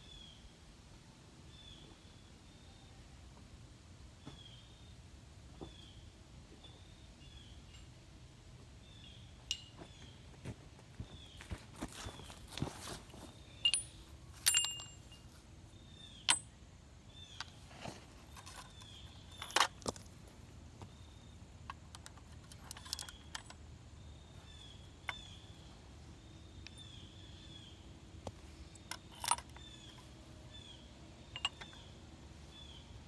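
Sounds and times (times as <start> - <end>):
metal weights clinking: 13.6 - 15.3, 31.3 - 31.9.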